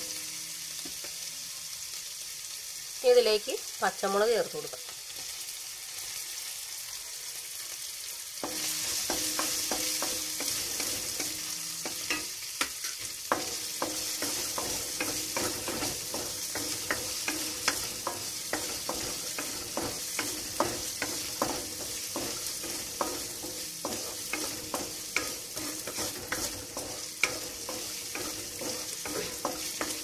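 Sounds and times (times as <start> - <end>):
chillies sizzling in oil: 0.0 - 30.0
wooden spatula scraping a pan: 12.8 - 30.0.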